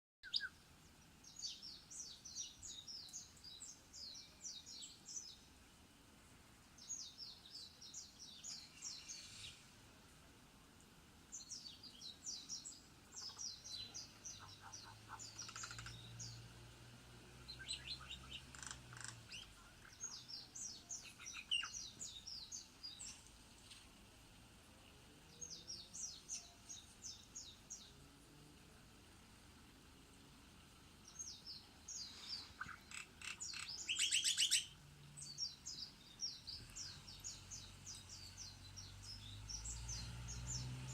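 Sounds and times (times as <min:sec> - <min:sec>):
bird singing: 0:00.2 - 0:05.5, 0:06.8 - 0:09.7, 0:11.3 - 0:16.6, 0:17.3 - 0:23.8, 0:25.3 - 0:28.0, 0:31.0 - 0:40.9.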